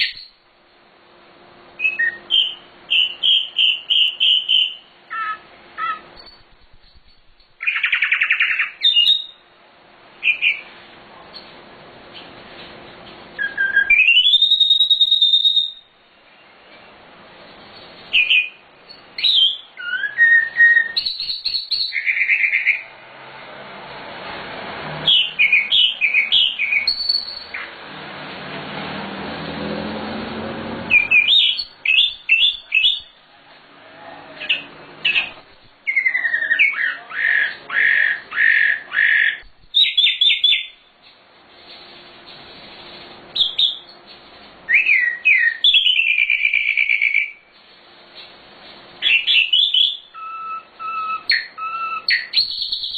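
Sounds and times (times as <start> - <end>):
songbird singing trills: 0.0 - 0.4, 1.8 - 9.4, 13.4 - 15.9, 17.8 - 22.9, 25.1 - 27.7, 30.9 - 33.2, 34.5 - 40.8, 44.7 - 47.4, 49.0 - 52.9
broad rushing noise: 22.8 - 31.3.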